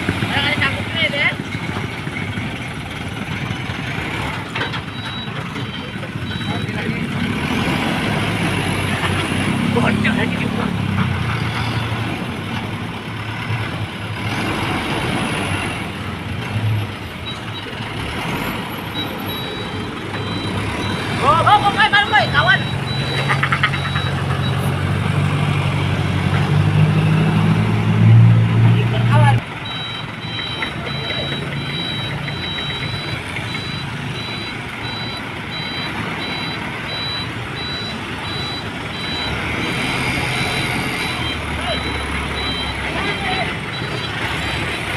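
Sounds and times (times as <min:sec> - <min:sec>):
diesel truck engine running: 0:00.0 - 0:44.9
reversing alarm beeping: 0:04.6 - 0:07.0, 0:18.8 - 0:24.7, 0:29.6 - 0:44.9.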